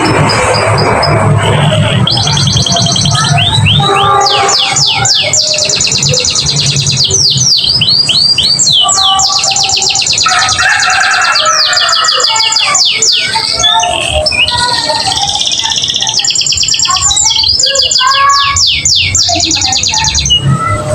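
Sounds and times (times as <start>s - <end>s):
canary singing fast trills: 0.4s - 20.4s.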